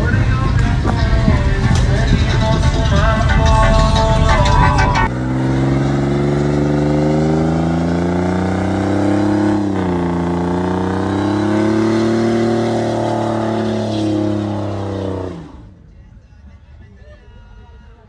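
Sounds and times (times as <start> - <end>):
vehicle engine at high revs: 0.0 - 15.8.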